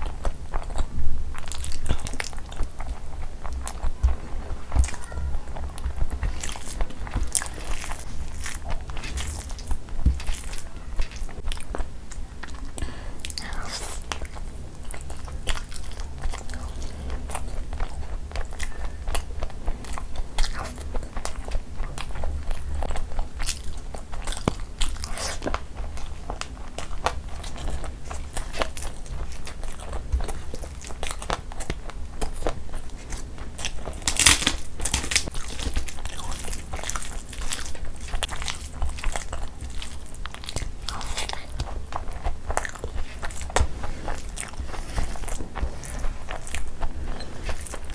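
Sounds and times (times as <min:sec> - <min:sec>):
chewing a mouthful of food: 0:00.0 - 0:47.9
food crunches: 0:05.7 - 0:47.9.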